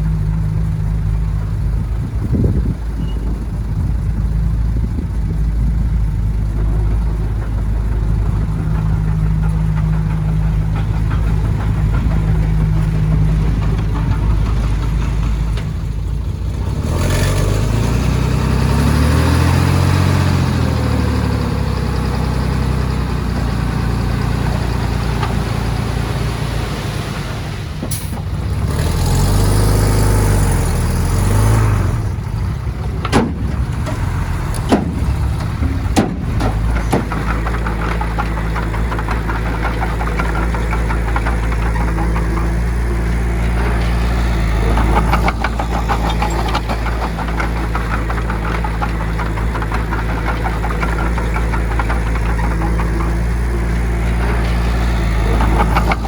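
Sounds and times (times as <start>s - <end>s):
diesel engine working under load: 0.0s - 56.0s
sharp metallic clanks: 32.6s - 56.0s.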